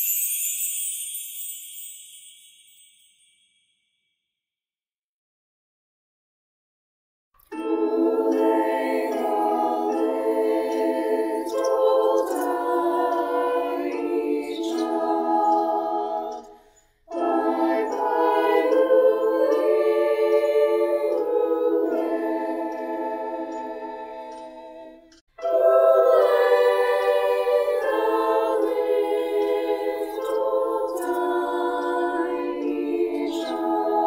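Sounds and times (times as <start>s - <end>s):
choir singing a cappella: 7.5s - 34.0s.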